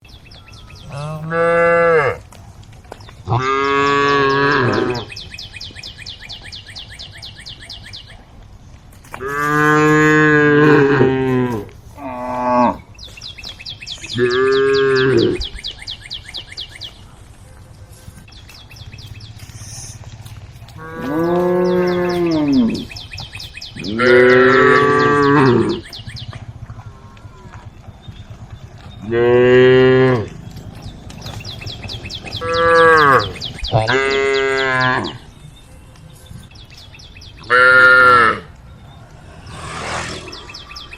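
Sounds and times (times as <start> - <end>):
cattle mooing: 0.7 - 2.3, 3.3 - 5.2, 9.2 - 12.9, 14.1 - 15.5, 20.7 - 23.0, 23.8 - 26.0, 28.9 - 31.4, 32.2 - 35.3, 37.4 - 38.6.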